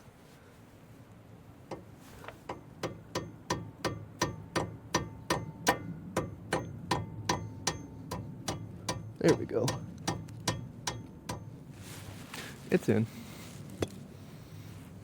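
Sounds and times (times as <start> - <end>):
hammer tapping on metal: 2.5 - 11.5.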